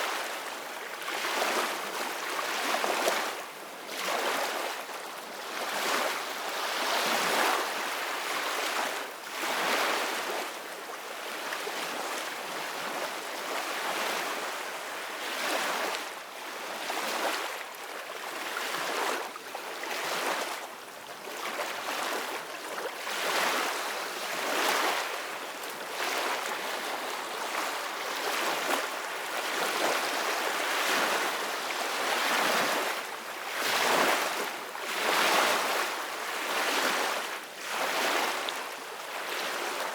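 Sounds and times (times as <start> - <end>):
ocean waves breaking on shore: 21.3 - 39.9.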